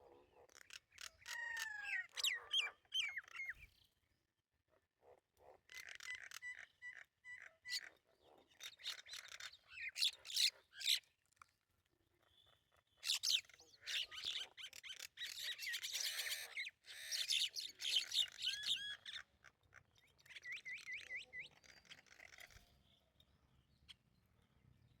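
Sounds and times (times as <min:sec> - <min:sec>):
songbirds chirping and singing: 0:12.2 - 0:25.0.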